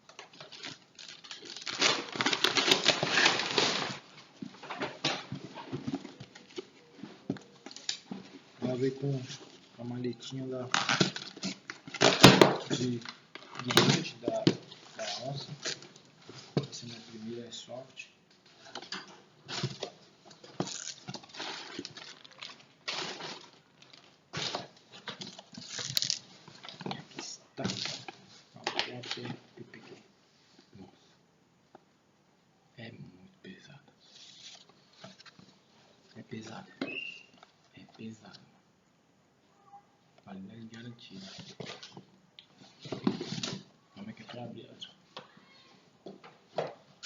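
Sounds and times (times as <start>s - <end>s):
packaging crinkling and rustling: 0.0s - 9.6s, 10.6s - 17.8s, 18.5s - 29.4s.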